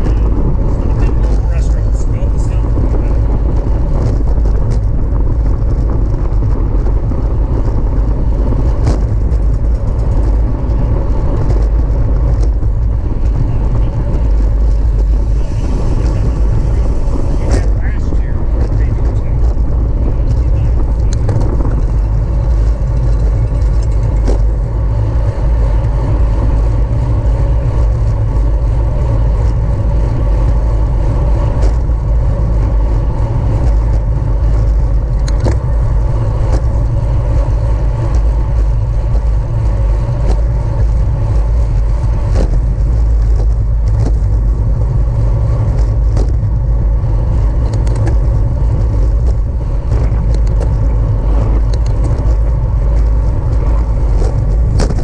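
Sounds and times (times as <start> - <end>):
hum of bicycle tyres: 0.0 - 55.0
wind buffeting microphone: 0.0 - 55.0.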